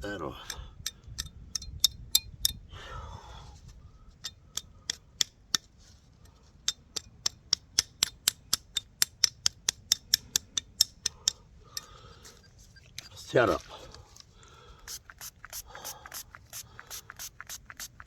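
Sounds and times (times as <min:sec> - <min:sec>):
tool scraping metal: 0:10.8 - 0:13.8, 0:14.9 - 0:18.0.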